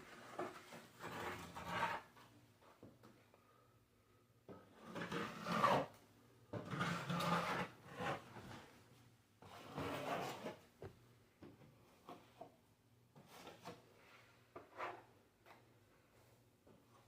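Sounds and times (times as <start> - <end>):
drywall knife scraping wall: 0.0 - 2.3, 4.5 - 8.8, 9.4 - 10.7, 13.2 - 15.2.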